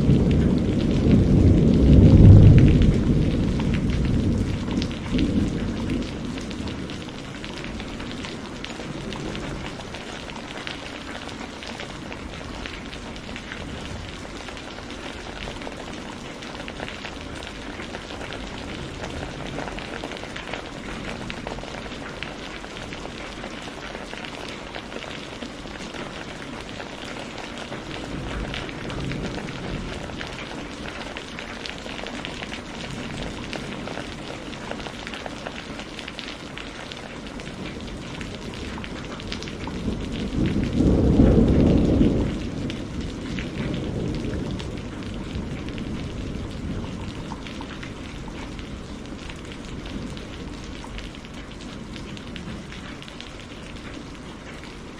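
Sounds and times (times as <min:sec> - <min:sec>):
low rumble of thunder: 0:00.0 - 0:54.9
rain falling: 0:00.0 - 0:54.9.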